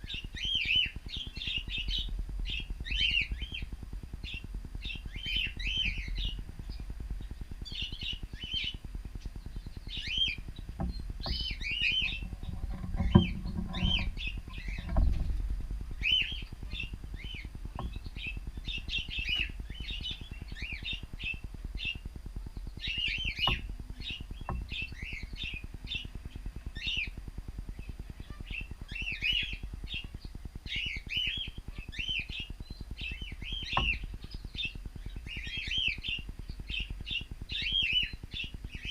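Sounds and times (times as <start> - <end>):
cockatiels chirping: 0.0 - 6.8, 16.0 - 22.0, 27.8 - 38.9
low rumble: 0.0 - 28.9.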